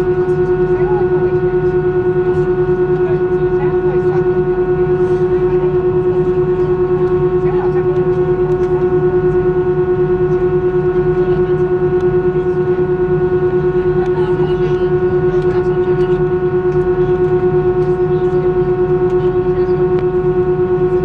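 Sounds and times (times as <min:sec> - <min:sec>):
loud steady pitched hum: 0:00.0 - 0:21.0
pulsing low drone: 0:00.0 - 0:21.0.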